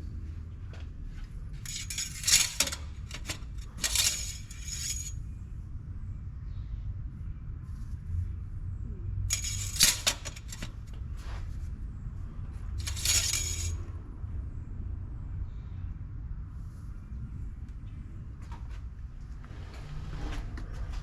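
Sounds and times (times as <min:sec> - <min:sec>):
metal pieces clinking: 0:01.6 - 0:05.2, 0:09.3 - 0:10.7, 0:12.8 - 0:13.8.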